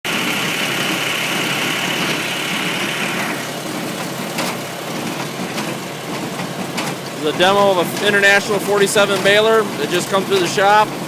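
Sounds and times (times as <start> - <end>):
high machine whine: 0.0 - 5.5
hay baler clattering: 0.1 - 11.0.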